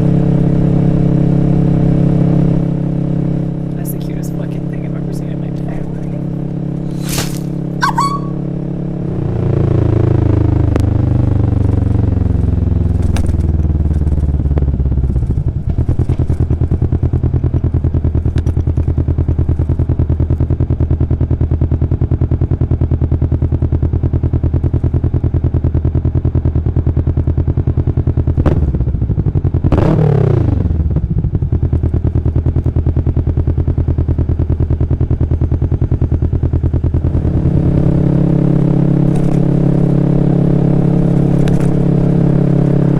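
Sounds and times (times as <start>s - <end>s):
motorcycle engine running: 0.0s - 42.9s
sound sweeping down in pitch: 7.4s - 8.5s.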